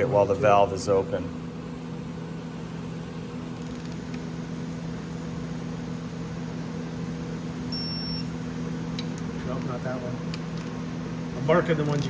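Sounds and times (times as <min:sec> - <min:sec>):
steady machine hum: 0:00.0 - 0:12.0
short high beep: 0:07.7 - 0:08.3.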